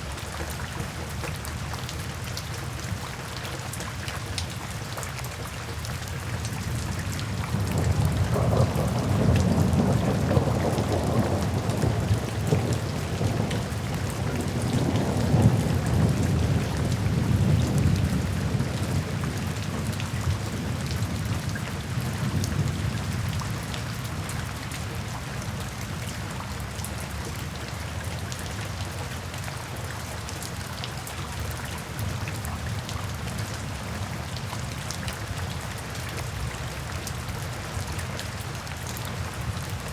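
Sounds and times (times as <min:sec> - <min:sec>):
steady rain: 0:00.0 - 0:39.9
rolling thunder: 0:07.5 - 0:19.9.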